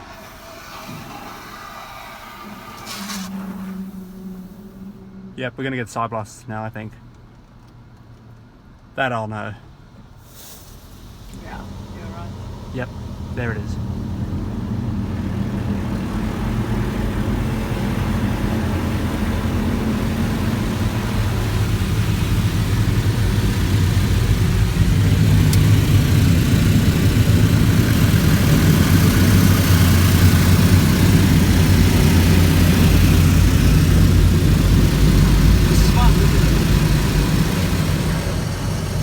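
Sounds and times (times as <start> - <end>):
water jets spraying a car: 0.0 - 4.7, 10.2 - 39.0
low machine drone: 11.4 - 39.0.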